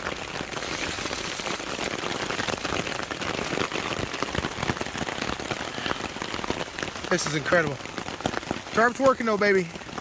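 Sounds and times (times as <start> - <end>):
heavy rain on a tarp: 0.0 - 10.0.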